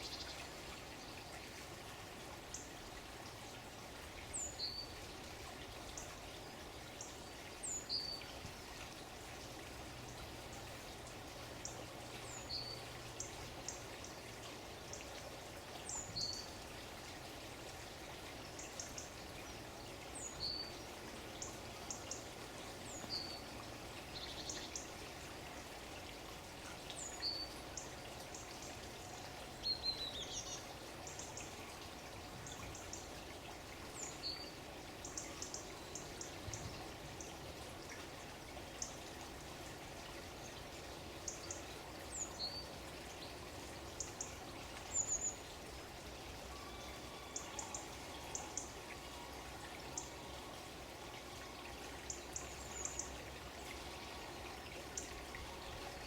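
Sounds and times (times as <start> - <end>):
running water: 0.0 - 56.0
songbirds calling: 11.6 - 14.2, 18.4 - 25.0, 26.9 - 33.1, 33.9 - 37.4, 40.4 - 56.0.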